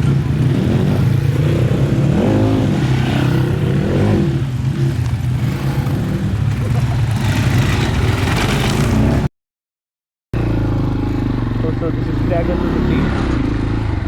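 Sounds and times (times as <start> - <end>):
dirt bike engine running: 0.0 - 9.3.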